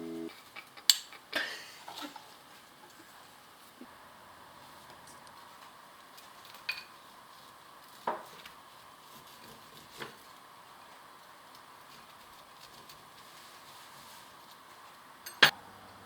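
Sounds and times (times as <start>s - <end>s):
tableware clinking: 15.3s - 15.5s.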